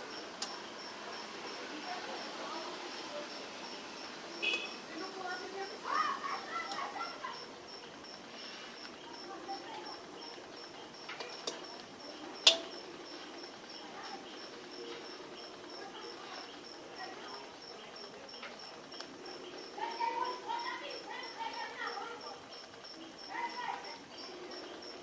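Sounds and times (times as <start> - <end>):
insect chirping: 0.0 - 25.0
sharp click: 12.4 - 12.8.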